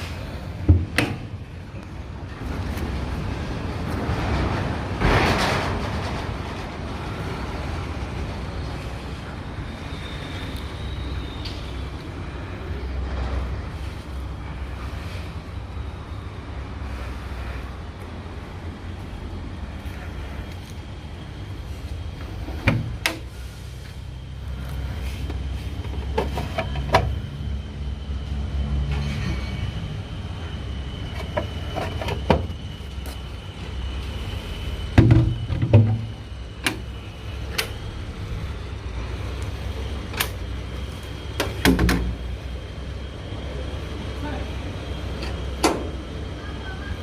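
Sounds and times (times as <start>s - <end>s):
lorry engine rumbling: 0.0s - 47.0s
sharp knocks and clunks: 0.6s - 1.4s, 35.0s - 36.1s, 41.4s - 42.2s.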